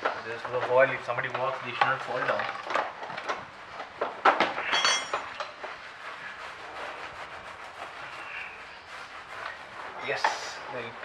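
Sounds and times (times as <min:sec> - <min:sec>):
scrubbing a floor: 0:00.2 - 0:11.0.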